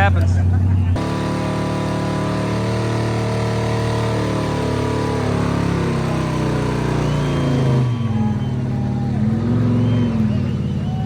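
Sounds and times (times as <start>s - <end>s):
race car engine running: 0.0s - 11.0s.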